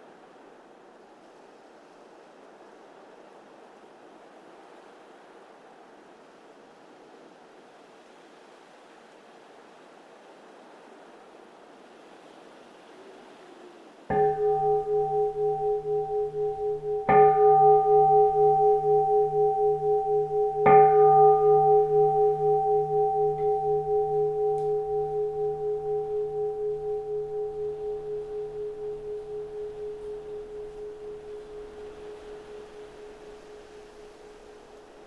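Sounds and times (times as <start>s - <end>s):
soft wind: 14.1s - 35.0s
temple bowl bell ringing: 14.1s - 35.0s.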